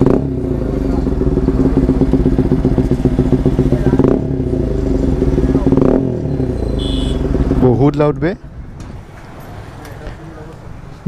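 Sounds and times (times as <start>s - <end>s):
loud motorcycle engine idling: 0.0s - 7.8s.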